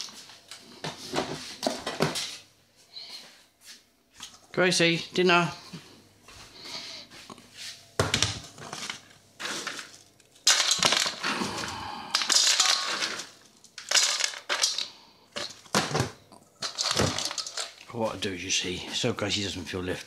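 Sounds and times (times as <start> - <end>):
dog food rattling into bowl: 16.6 - 17.9.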